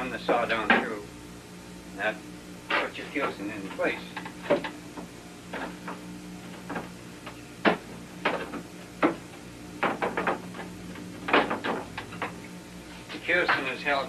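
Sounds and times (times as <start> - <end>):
steady low hum: 0.0 - 14.0
wooden parts knocking: 9.8 - 10.6, 11.3 - 12.4.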